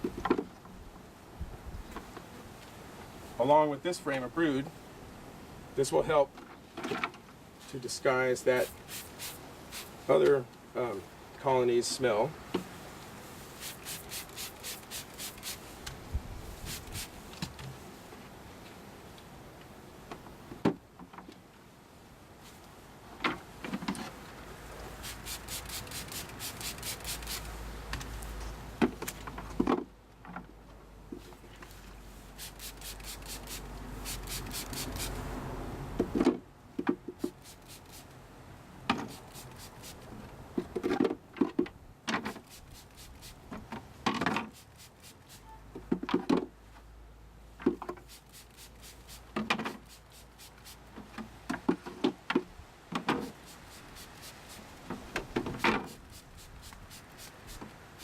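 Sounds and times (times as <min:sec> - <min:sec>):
wooden frames knocking and scraping: 0:45.7 - 0:46.6, 0:50.9 - 0:53.4.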